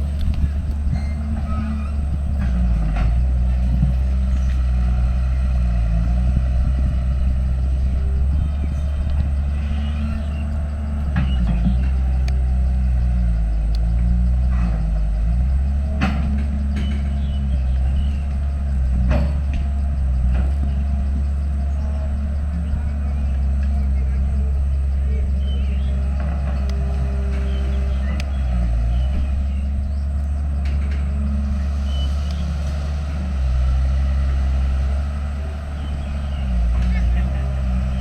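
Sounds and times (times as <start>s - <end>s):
heavy diesel machinery engine: 0.0s - 38.0s.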